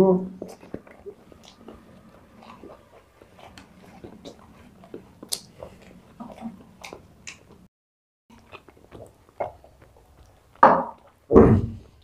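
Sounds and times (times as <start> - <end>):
chewing and wet mouth sounds: 0.3 - 7.7, 8.3 - 11.3
sharp mouth clicks and smacks: 2.4 - 7.7.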